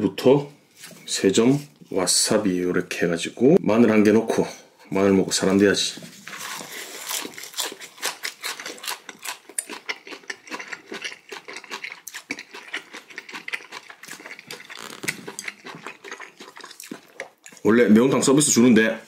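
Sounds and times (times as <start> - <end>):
close chewing crunches: 6.0 - 17.9.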